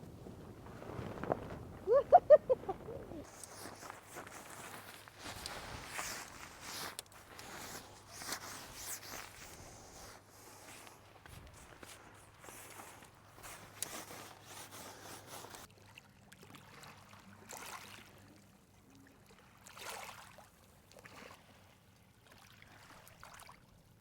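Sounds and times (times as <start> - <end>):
small waves washing on beach: 0.0 - 15.7.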